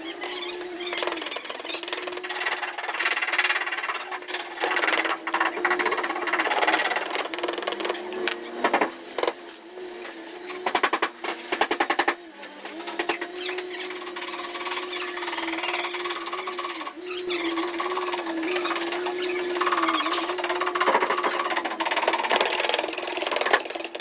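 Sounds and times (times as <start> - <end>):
steady hum: 17.3 - 21.3.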